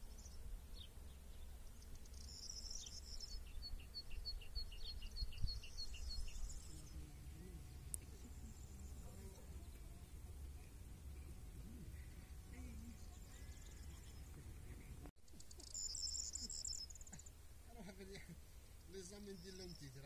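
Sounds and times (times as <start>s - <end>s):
songbird chirping: 0.0s - 20.0s
low outdoor rumble: 6.6s - 15.1s.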